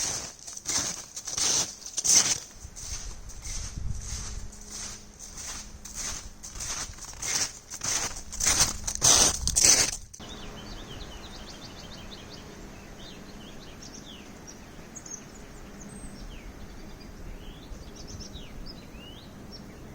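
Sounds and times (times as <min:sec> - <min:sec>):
footsteps crunching through snow: 0:00.0 - 0:10.3
small birds chirping: 0:00.0 - 0:19.9
steady outdoor hiss: 0:00.0 - 0:19.9.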